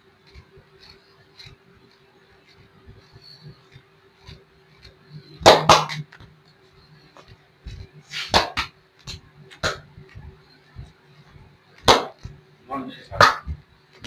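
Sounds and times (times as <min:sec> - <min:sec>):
faint steady hum: 0:00.0 - 0:14.0
hands smacking on skin: 0:08.1 - 0:09.8, 0:11.8 - 0:12.4.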